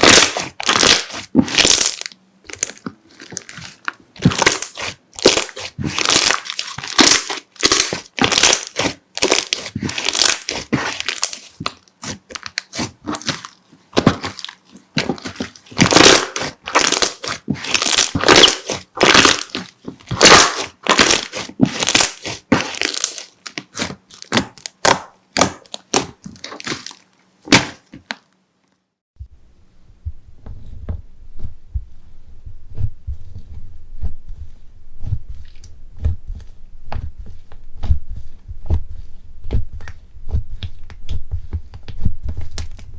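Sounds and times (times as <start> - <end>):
slime crackling and popping: 0.0 - 28.2
soft low thumps: 29.2 - 42.9.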